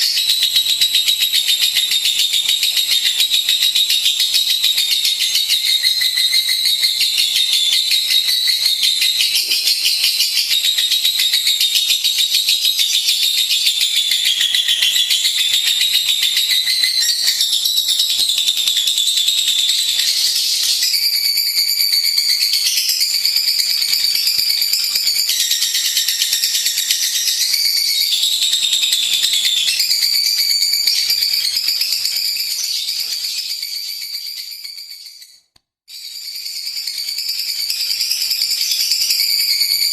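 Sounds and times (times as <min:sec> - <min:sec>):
bird chattering trill: 0:00.0 - 0:12.0.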